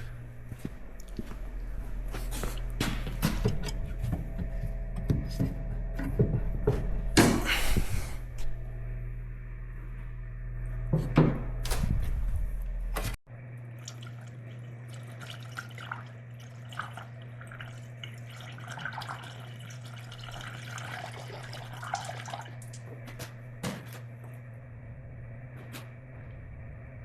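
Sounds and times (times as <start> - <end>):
steady low hum: 0.0 - 27.0
liquid pouring and dripping: 13.8 - 22.8.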